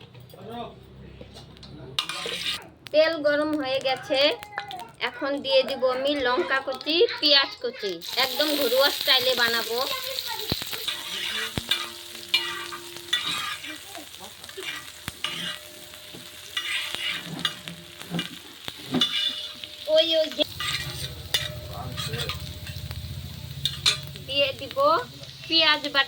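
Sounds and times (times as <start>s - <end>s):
metal spatula scraping pan: 2.0s - 2.7s, 8.3s - 22.9s, 23.6s - 24.2s
vegetables sizzling in hot oil: 2.0s - 26.0s.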